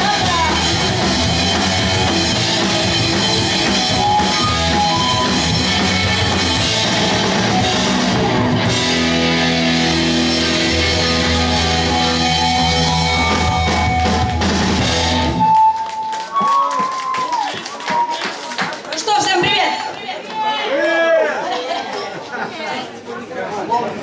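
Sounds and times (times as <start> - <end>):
pop-punk band playing live: 0.0 - 15.7.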